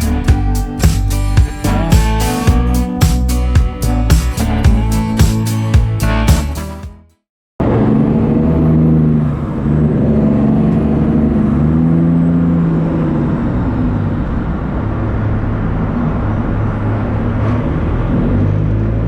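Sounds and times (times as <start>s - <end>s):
truck diesel engine running: 0.0s - 6.8s.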